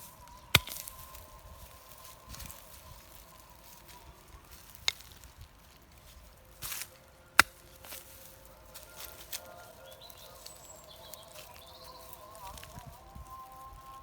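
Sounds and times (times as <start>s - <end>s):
digging tool striking soil: 0.4s - 1.2s, 4.6s - 5.3s, 6.6s - 8.1s.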